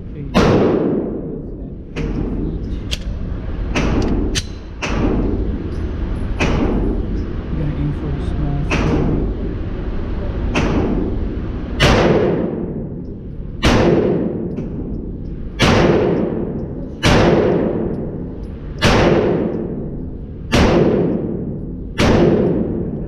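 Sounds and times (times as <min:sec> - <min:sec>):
pistol shots echoing: 0:00.4 - 0:01.2, 0:13.6 - 0:14.5, 0:15.6 - 0:18.2, 0:18.8 - 0:19.8, 0:20.5 - 0:22.9.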